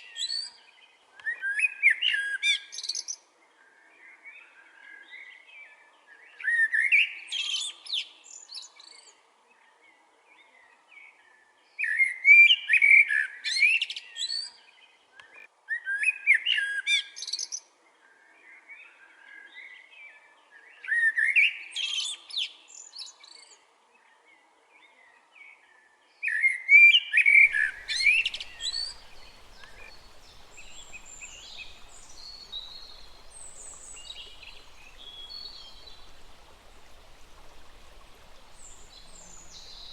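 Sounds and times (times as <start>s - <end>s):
songbird warbling song: 26.2s - 39.9s
high bird calls: 27.4s - 39.9s
small stream rushing: 27.4s - 39.9s.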